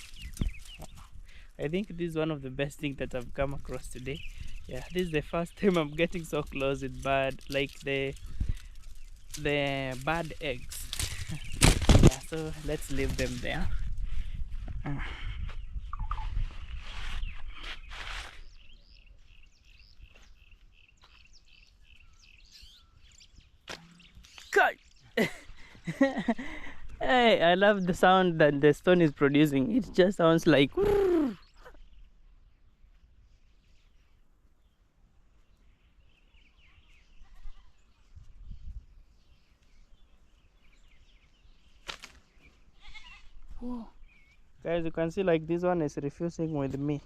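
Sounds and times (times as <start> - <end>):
small birds chirping: 0.0 - 47.0
brief rustle: 16.8 - 18.4, 41.8 - 42.5.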